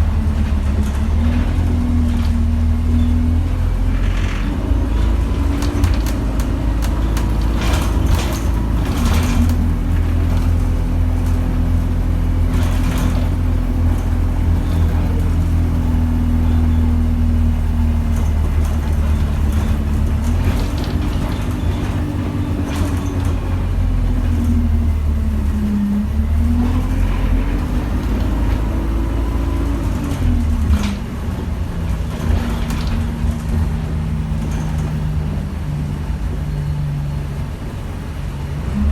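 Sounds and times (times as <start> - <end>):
bus engine rumble: 0.0 - 38.9
short rattles and knocks: 3.8 - 15.8, 18.0 - 24.9.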